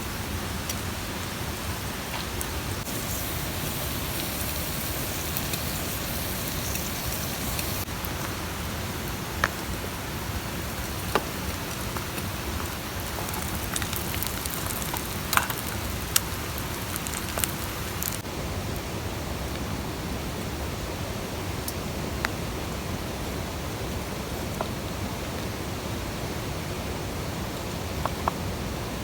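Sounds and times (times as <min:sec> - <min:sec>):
campfire popping: 0:02.1 - 0:18.3.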